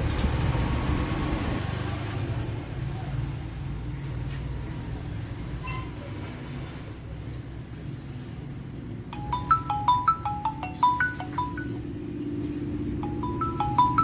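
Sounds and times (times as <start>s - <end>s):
marimba ringtone from phone speaker: 9.2s - 12.0s, 13.0s - 14.0s.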